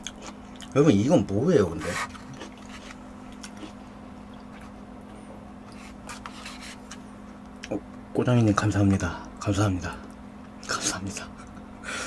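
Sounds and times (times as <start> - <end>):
steady low hum: 0.0 - 12.0
wet chewing: 1.7 - 4.8.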